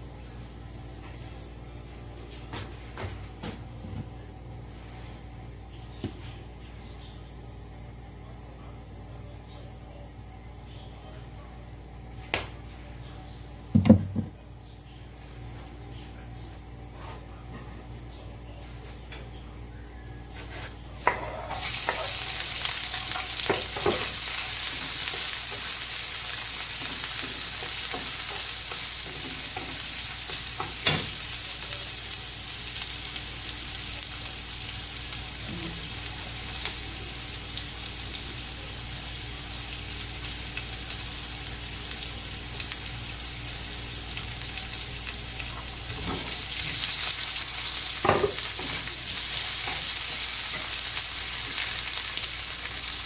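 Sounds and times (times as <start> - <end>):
oil sizzling in frying pan: 21.0 - 53.0.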